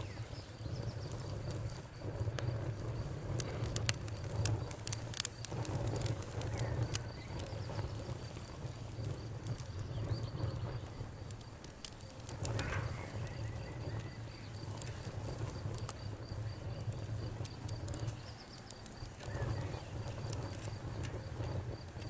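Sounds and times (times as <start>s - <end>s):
campfire crackling and popping: 0.0s - 22.0s
cricket chirping: 12.4s - 22.0s.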